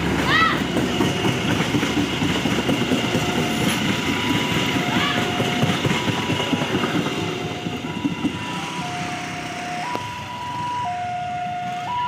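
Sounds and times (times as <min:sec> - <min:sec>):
train rumbling on rails: 0:00.0 - 0:12.0
electronic warning tone: 0:07.9 - 0:12.0.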